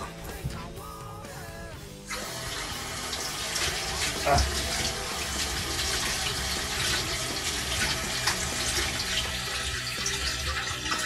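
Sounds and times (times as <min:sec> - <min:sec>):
kitchen tap running: 0:02.1 - 0:11.0
water splashing over meat: 0:03.1 - 0:11.0.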